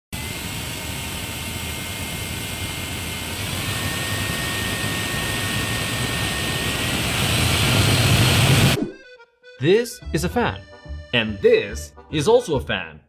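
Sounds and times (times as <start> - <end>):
jet engine rushing and whining: 0.2 - 8.8.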